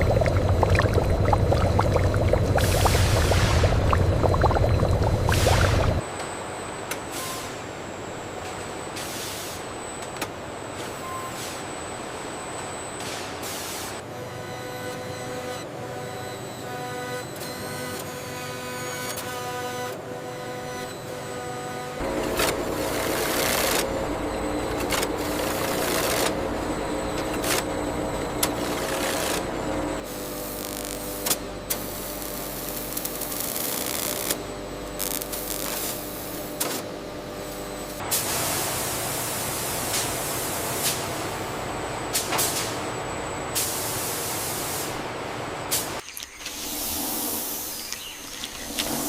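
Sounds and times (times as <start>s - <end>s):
steady machine hum: 0.0s - 6.0s, 22.0s - 30.1s.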